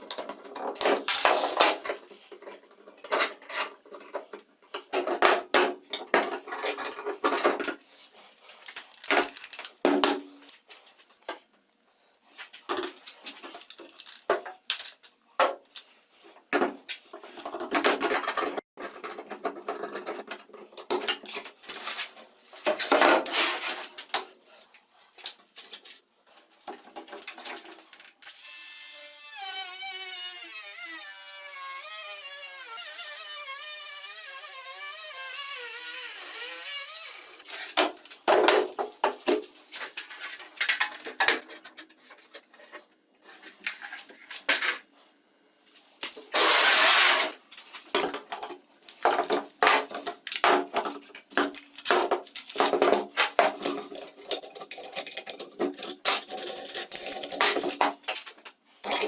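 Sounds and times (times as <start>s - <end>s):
small power tool running: 28.2s - 37.5s.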